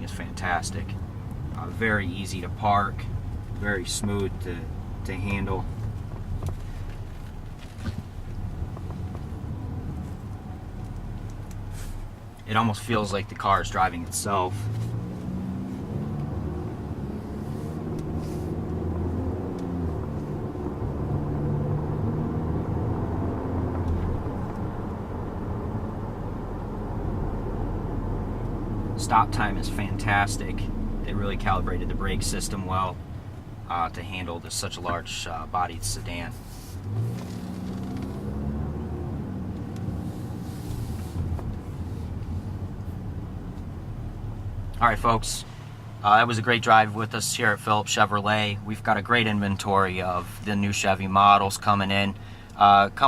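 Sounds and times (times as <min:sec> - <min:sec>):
muffled car engine running: 0:00.0 - 0:53.0
road noise: 0:00.0 - 0:53.0.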